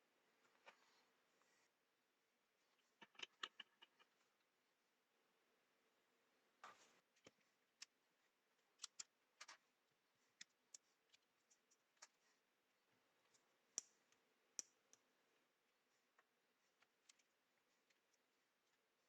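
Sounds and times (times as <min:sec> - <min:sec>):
small parts clicking and tapping: 0:02.8 - 0:04.2, 0:08.8 - 0:09.6.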